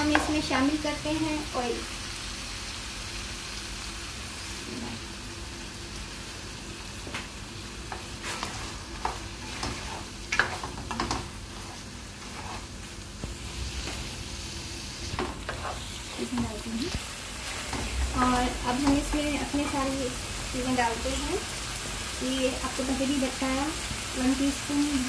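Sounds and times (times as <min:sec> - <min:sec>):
spatula knocking and scraping pot: 0:00.0 - 0:00.5, 0:07.9 - 0:14.0
spatula stirring: 0:00.0 - 0:00.5, 0:07.9 - 0:14.1, 0:15.1 - 0:16.7
tripe sizzling in oil: 0:00.0 - 0:25.0.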